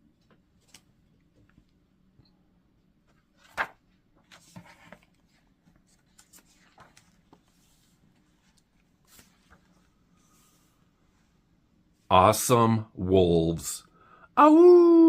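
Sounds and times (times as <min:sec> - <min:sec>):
paper pages rustling: 0:03.1 - 0:10.7.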